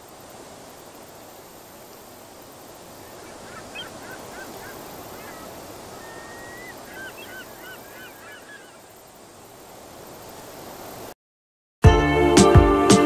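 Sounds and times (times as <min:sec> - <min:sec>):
steady background hiss: 0:00.0 - 0:11.2
bird whistling: 0:03.0 - 0:08.8.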